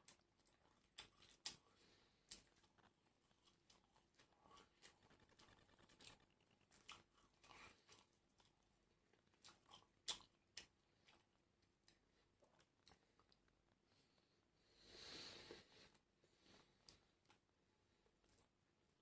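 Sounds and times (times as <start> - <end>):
chewing crunchy food: 0.0 - 13.8.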